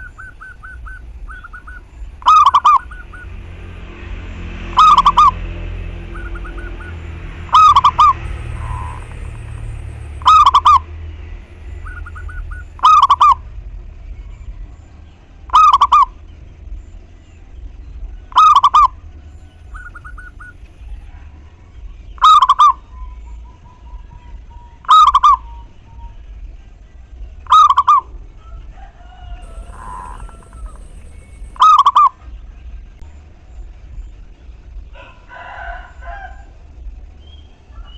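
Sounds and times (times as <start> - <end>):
bird chirps: 0.0 - 3.4, 4.7 - 13.4, 14.1 - 26.3, 29.2 - 32.7, 37.2 - 37.9
dove cooing: 0.0 - 3.4, 6.0 - 10.8, 11.8 - 13.4, 15.5 - 16.1, 27.5 - 32.2.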